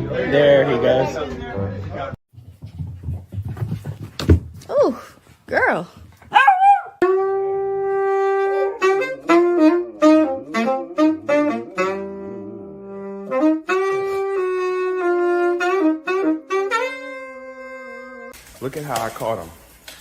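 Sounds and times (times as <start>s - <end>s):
saxophone jazz melody: 7.0s - 18.4s.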